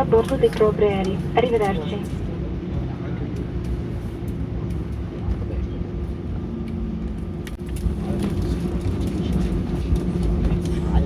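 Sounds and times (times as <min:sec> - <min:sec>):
aircraft engines humming: 0:00.0 - 0:11.0
cabin rumble: 0:02.0 - 0:11.0.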